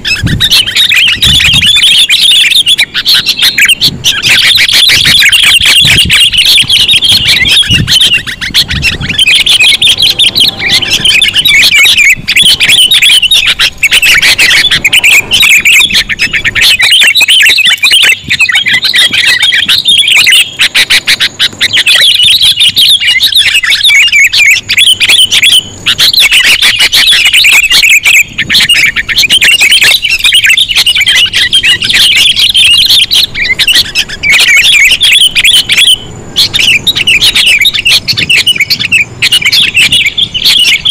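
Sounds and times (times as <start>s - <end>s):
bulbuls chattering: 0.0s - 40.9s.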